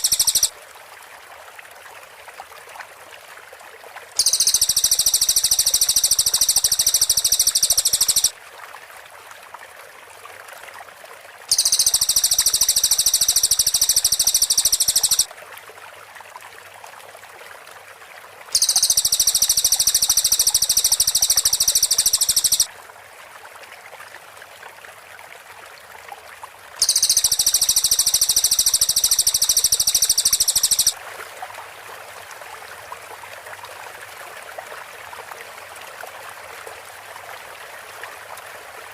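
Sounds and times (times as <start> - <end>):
bird high-pitched trills: 0.0 - 0.5, 4.2 - 8.3, 11.5 - 15.3, 18.6 - 22.7, 26.8 - 31.0
stream trickling: 0.0 - 38.9.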